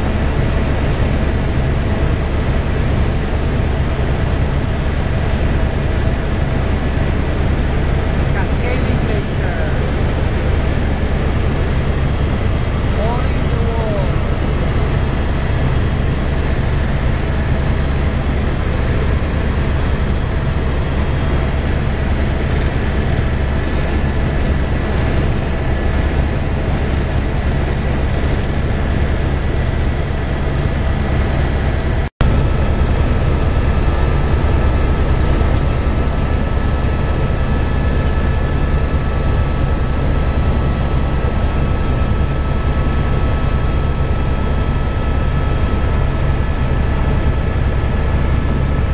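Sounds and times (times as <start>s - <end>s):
helicopter rotor and engine drone: 0.0s - 48.9s.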